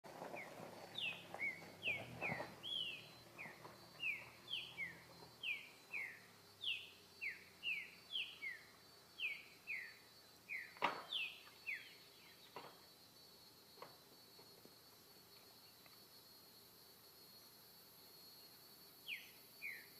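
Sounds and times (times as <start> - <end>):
bird whistling song: 0.4 - 12.3.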